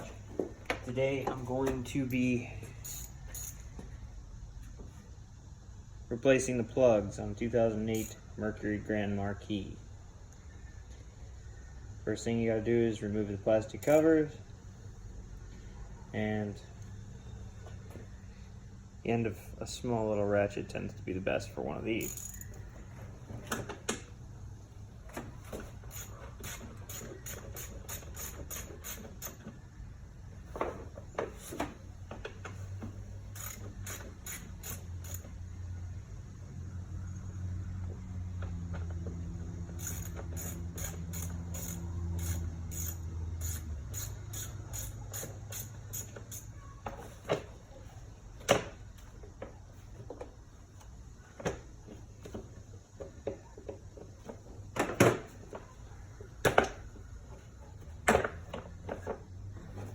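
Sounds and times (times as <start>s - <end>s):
small ratchet clicking: 2.2s - 3.7s, 7.9s - 8.2s, 13.8s - 14.0s, 22.0s - 22.6s, 25.8s - 29.6s, 33.3s - 35.4s, 39.6s - 46.6s.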